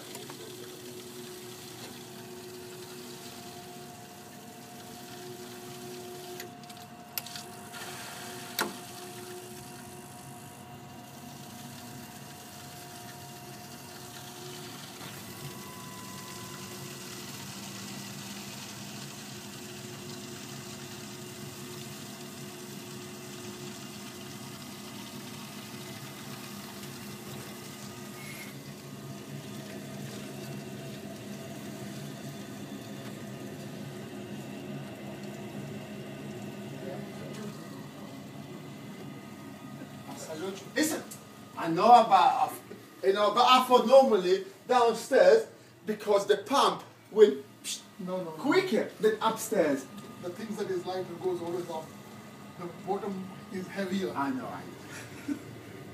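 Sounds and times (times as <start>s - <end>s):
boiler humming: 0.0s - 55.9s.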